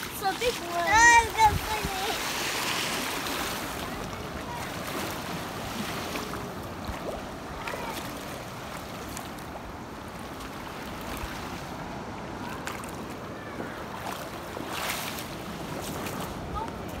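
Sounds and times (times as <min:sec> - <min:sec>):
wind buffeting microphone: 0:00.0 - 0:08.7
surf washing on beach: 0:00.0 - 0:17.0
faint distant voices: 0:12.3 - 0:15.2.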